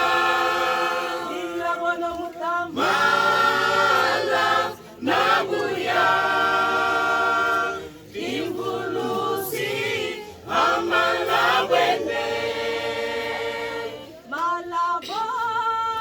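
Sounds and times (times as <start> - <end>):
choir singing in harmony: 0.0 - 15.4.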